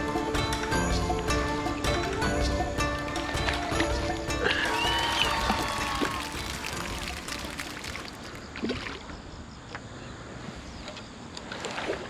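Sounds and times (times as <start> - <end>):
river water lapping: 4.5 - 9.3, 11.0 - 12.0
small splashes: 4.6 - 9.1.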